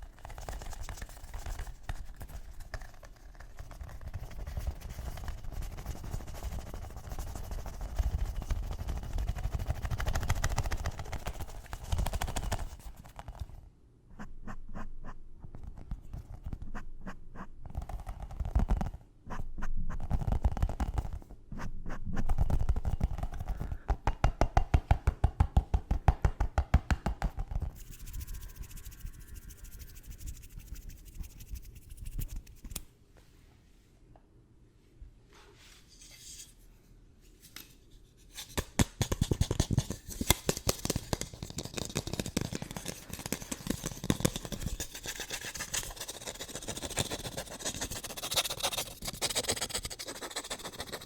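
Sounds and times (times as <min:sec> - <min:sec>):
tapping on hard objects: 0:22.8 - 0:27.6
scratching on hard objects: 0:37.4 - 0:51.0.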